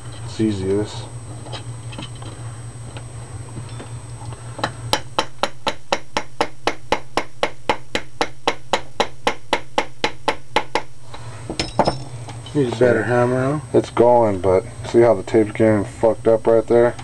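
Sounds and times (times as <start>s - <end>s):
low hum: 0.0s - 17.0s
hammer tapping a punch: 4.6s - 10.9s.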